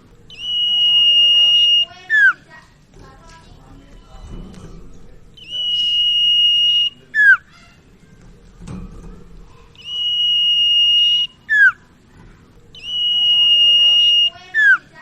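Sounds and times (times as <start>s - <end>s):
bird whistling: 0.3s - 2.4s, 5.4s - 7.8s, 9.8s - 11.9s, 12.7s - 15.0s.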